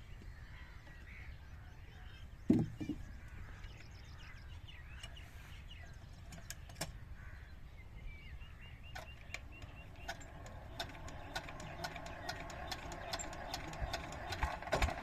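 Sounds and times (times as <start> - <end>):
small birds chirping: 0.0 - 15.0
sharp clicks: 9.0 - 15.0.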